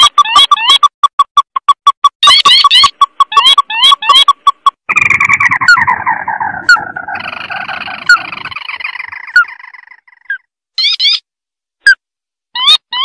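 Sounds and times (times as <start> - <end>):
crake chattering trill: 2.2 - 11.2
high rising bird notes: 4.9 - 10.4.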